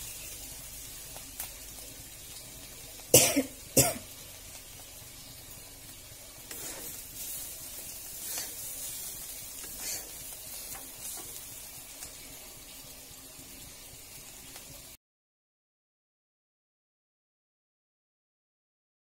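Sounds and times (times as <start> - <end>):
vegetables sizzling in a pan: 0.0 - 15.0
metal spatula scraping a pan: 6.4 - 11.6.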